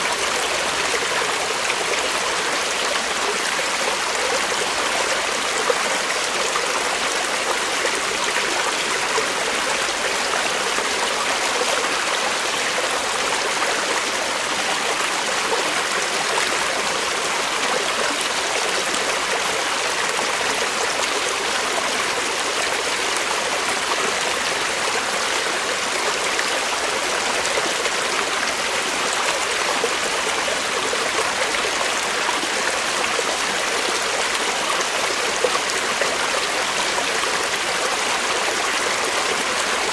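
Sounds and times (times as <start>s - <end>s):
creek water over rocks: 0.0s - 39.9s.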